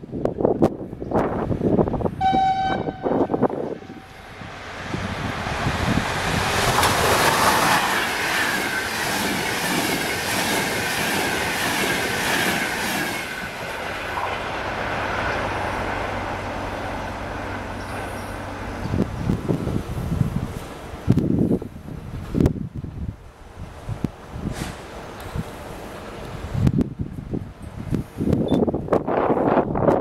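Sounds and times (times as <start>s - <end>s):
wind buffeting microphone: 0.0s - 30.0s
train whine falling in pitch: 2.2s - 4.6s
wheels clattering over rail joints: 5.6s - 15.5s.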